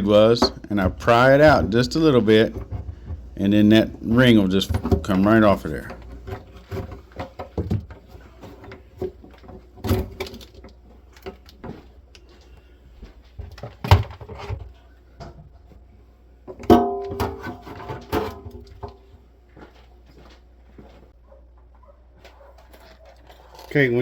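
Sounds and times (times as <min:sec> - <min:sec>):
metal clanks: 0:00.0 - 0:11.4, 0:16.5 - 0:19.1.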